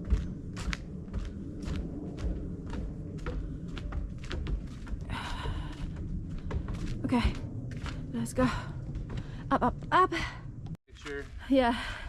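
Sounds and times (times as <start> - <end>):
footsteps on hiking trail: 0.0 - 9.3.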